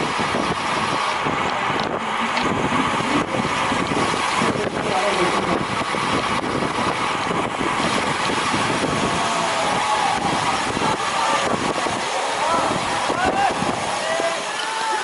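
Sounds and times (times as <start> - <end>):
wind over microphone: 0.0 - 14.1
faint voices: 8.7 - 15.0.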